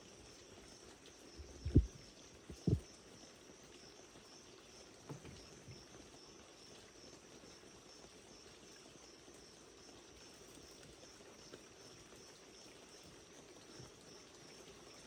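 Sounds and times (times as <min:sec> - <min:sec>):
high-pitched background hiss: 0:00.0 - 0:10.8
dull low thumps: 0:01.4 - 0:02.8.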